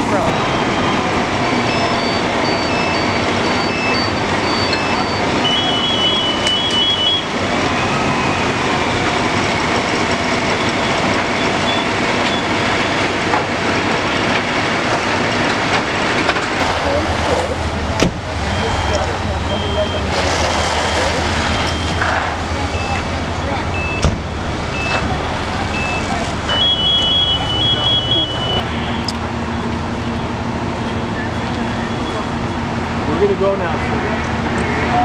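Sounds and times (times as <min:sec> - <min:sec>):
heavy machinery rumbling: 0:00.0 - 0:35.0
short high electronic beeps: 0:25.8 - 0:28.6.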